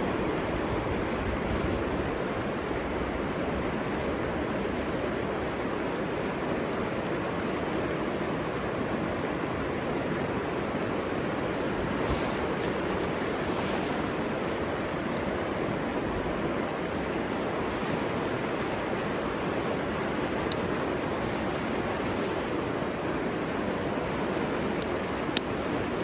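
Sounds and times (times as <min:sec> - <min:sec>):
river water rushing: 0:00.0 - 0:26.0
faint light ticks: 0:23.8 - 0:25.6.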